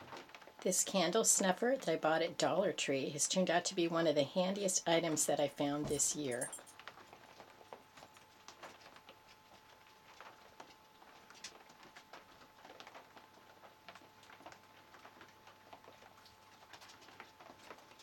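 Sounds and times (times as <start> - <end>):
light rain pattering: 0.0 - 18.0
faint high hum: 0.6 - 6.7.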